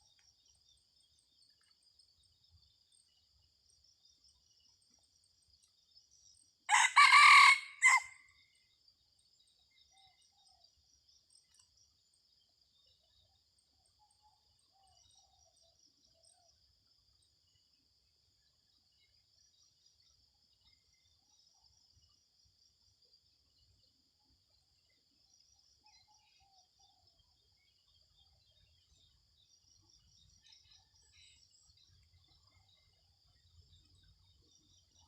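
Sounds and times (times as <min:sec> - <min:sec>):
rooster crowing: 0:06.7 - 0:08.2.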